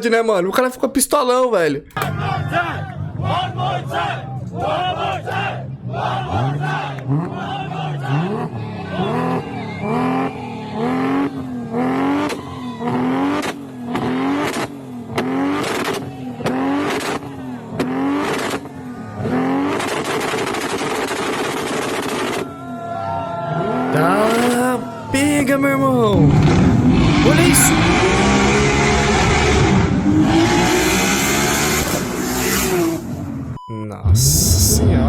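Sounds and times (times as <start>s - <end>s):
car engine revving: 1.9s - 22.5s, 26.1s - 33.6s.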